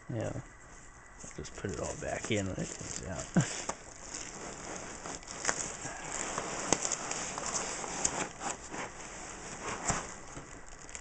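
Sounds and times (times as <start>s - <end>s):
packing peanuts rustling: 1.2s - 11.0s.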